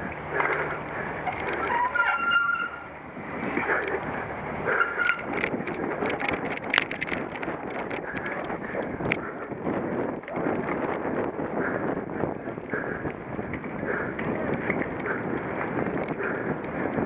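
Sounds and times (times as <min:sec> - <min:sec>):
bike chain and frame rattling: 0:00.0 - 0:17.0
wind noise: 0:00.0 - 0:17.0
brief high squeaks: 0:01.5 - 0:02.9.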